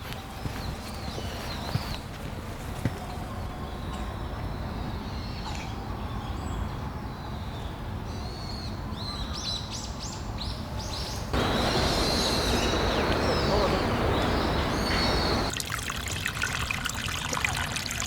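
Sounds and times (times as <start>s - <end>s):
wild birds chirping: 0.0s - 15.5s
loud rushing noise: 11.4s - 15.5s.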